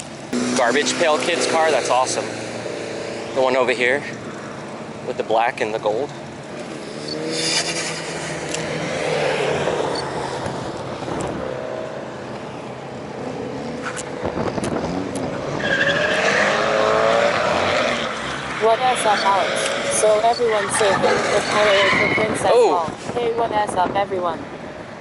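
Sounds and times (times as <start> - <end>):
engines revving hard: 0.2 - 12.2, 13.2 - 23.6
tyres squealing: 15.2 - 22.8.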